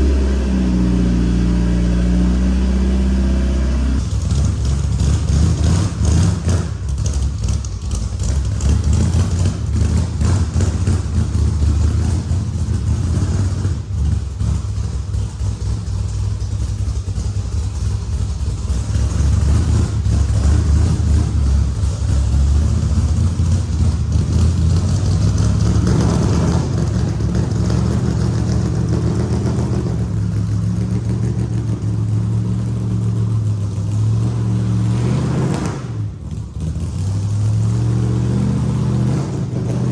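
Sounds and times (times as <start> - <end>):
car engine low rumble: 0.0 - 39.9.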